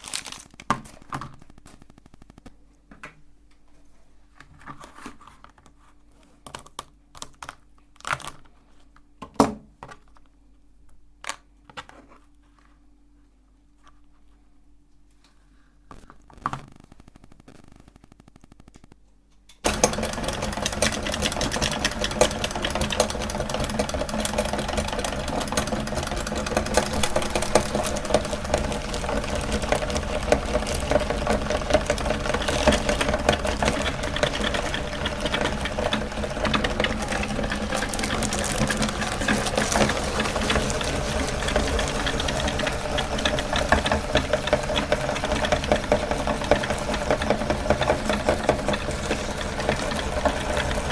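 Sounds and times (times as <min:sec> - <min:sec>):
meat grinder running: 0:19.6 - 0:50.9.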